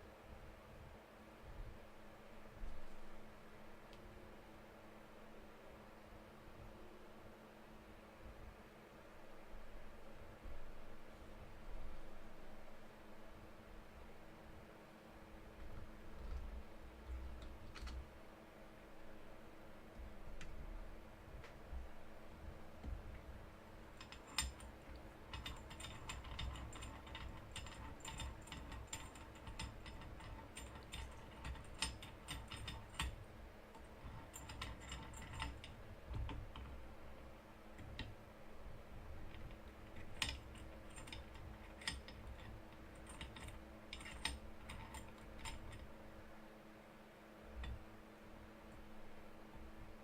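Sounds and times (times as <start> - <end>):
low steady hum: 0.0 - 50.0
small clicks and rattles: 15.6 - 18.1, 22.8 - 46.0.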